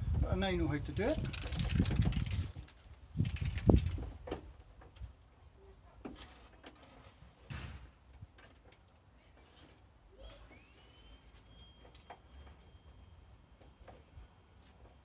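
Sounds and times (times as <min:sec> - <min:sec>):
dull thump: 0:07.5 - 0:08.0.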